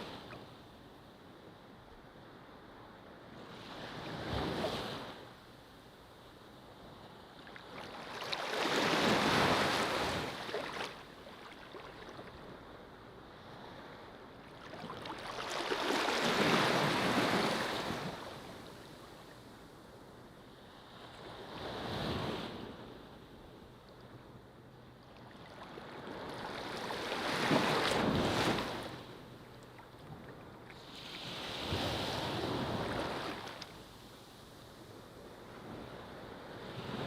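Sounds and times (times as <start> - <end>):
ocean waves breaking on shore: 7.3 - 19.7, 25.1 - 37.0.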